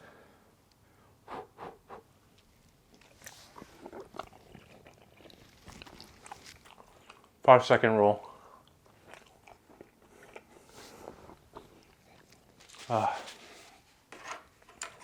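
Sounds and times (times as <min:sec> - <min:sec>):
soft chewing: 0:02.2 - 0:07.4, 0:08.2 - 0:13.9
small clicks and scrapes: 0:12.6 - 0:15.0.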